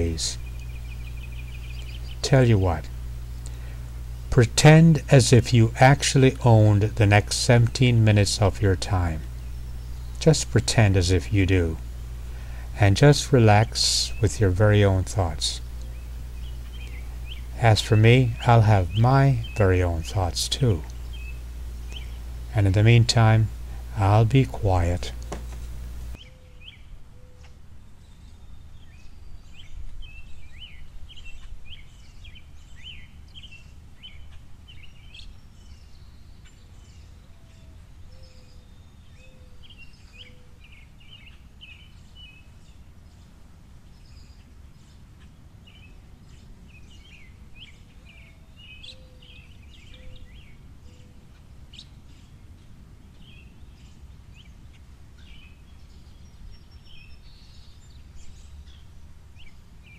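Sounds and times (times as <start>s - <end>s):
low background rumble: 0.0s - 26.2s
songbirds chirping: 0.0s - 59.9s.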